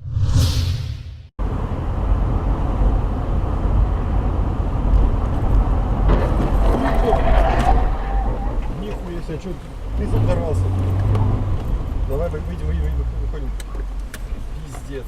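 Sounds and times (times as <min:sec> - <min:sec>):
whoosh: 0:00.0 - 0:01.3
car engine and tyre rumble: 0:01.4 - 0:15.0.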